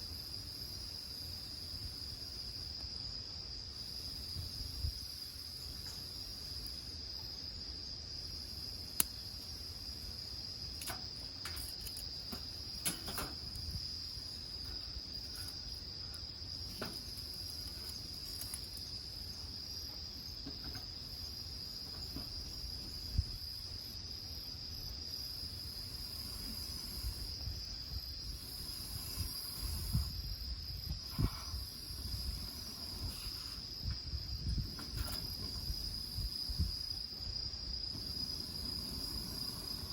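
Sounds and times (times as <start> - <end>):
insects trilling: 0.0 - 39.9
firewood crackling: 10.0 - 19.6.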